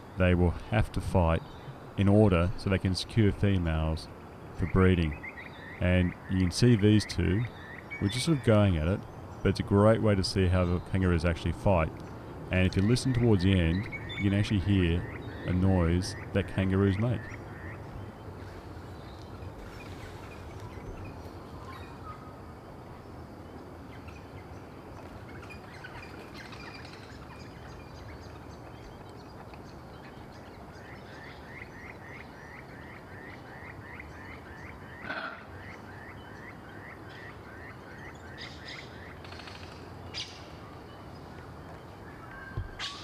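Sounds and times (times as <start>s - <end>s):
outdoor background noise: 0.0s - 43.0s
bird chirping rapidly: 12.4s - 18.2s.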